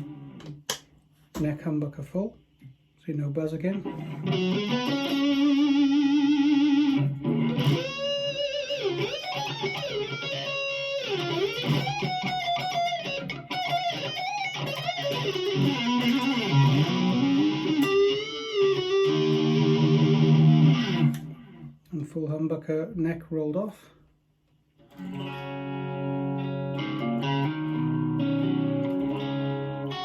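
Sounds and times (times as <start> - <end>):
overdriven electric guitar: 0.0 - 0.8, 3.8 - 21.8, 24.8 - 30.0.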